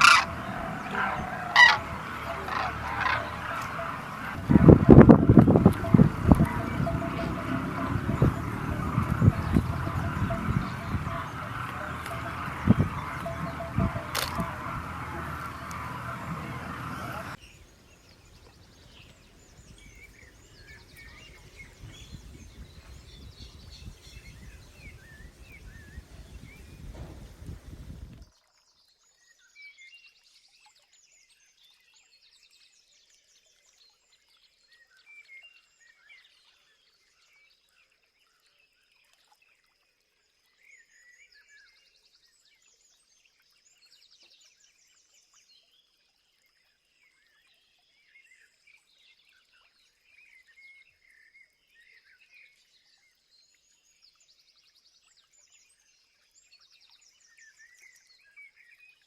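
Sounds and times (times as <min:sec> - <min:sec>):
wild birds singing: 0:00.0 - 0:28.1.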